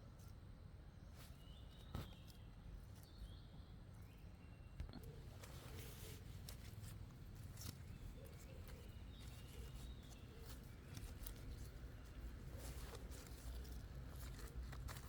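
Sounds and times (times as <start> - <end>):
light clicks and rustles: 4.8 - 15.0.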